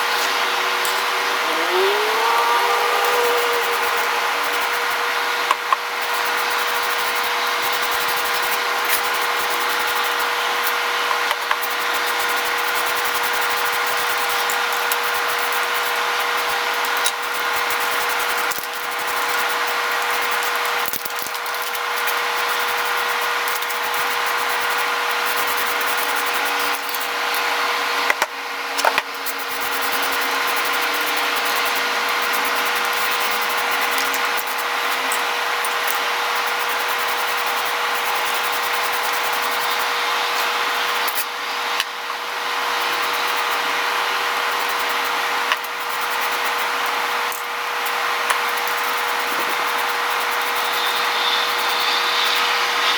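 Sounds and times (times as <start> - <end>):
power tool sanding: 0.0 - 27.6, 29.1 - 41.8, 48.6 - 52.9.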